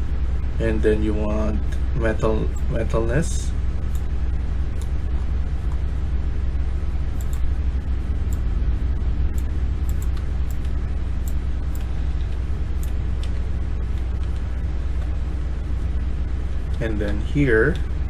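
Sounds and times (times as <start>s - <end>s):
low background rumble: 0.0s - 18.0s
computer mouse clicks: 7.2s - 7.4s, 9.4s - 11.9s, 12.8s - 13.3s.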